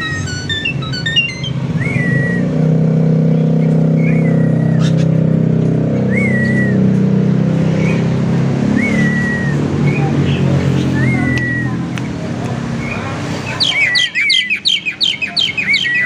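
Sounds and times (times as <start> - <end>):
bird chirps and whistles: 0.0 - 2.6, 3.9 - 5.1, 6.1 - 6.9, 8.7 - 11.8, 13.6 - 16.0
vehicle engine drone: 0.0 - 16.0.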